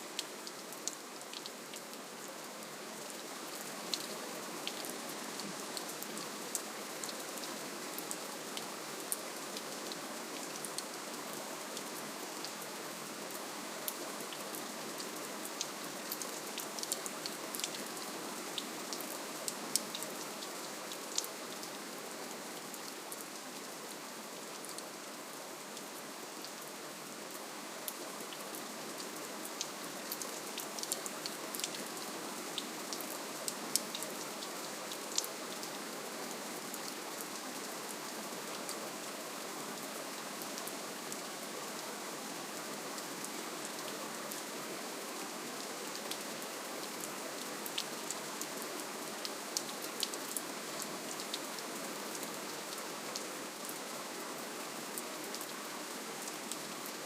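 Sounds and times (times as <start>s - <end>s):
gentle rain hiss: 0.0s - 57.0s.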